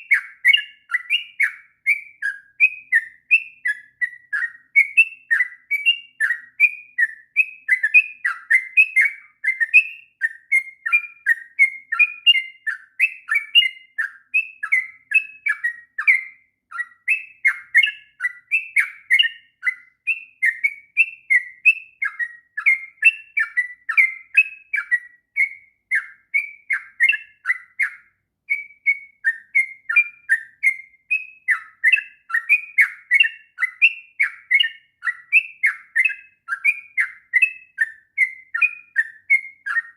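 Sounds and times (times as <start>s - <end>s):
bulbul singing nonstop: 0.0s - 39.9s.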